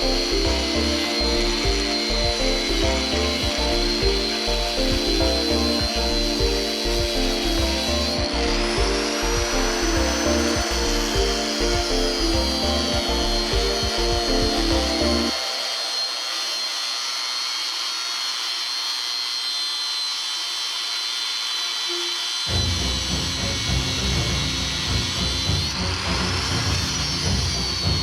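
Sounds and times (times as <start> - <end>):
background music with bass line: 0.0 - 15.3
power tool whining and grinding: 0.0 - 28.0.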